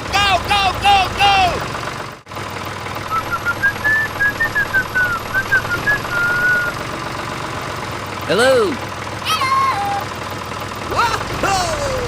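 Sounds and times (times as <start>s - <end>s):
whistled tune: 3.1s - 6.8s.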